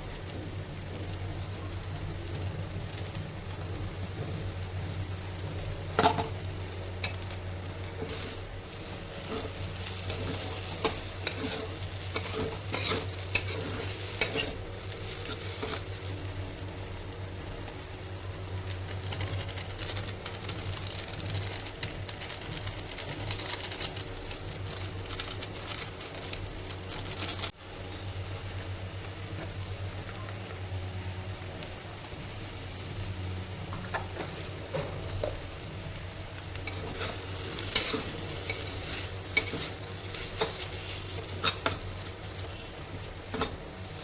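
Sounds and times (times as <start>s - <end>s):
noodles sizzling in a pan: 0.0s - 44.0s
steady low hum: 0.0s - 44.0s
spatula scraping a pan: 7.0s - 16.1s, 36.6s - 44.0s.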